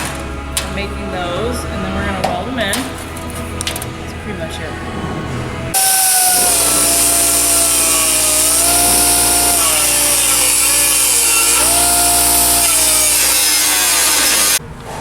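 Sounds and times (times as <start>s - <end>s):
power tool cutting sheet steel: 5.8s - 14.6s.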